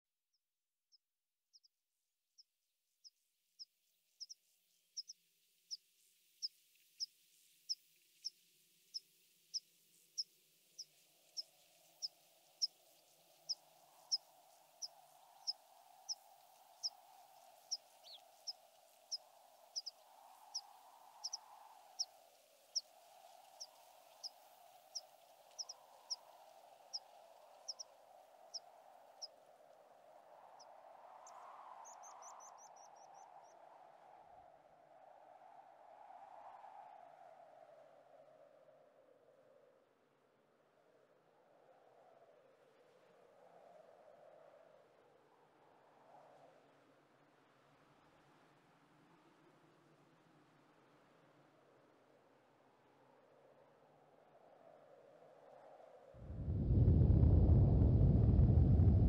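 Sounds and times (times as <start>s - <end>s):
small bird chirping: 0.9s - 1.7s, 4.2s - 5.8s, 7.7s - 22.1s, 22.7s - 26.3s, 27.6s - 27.9s
wind noise: 56.2s - 59.0s.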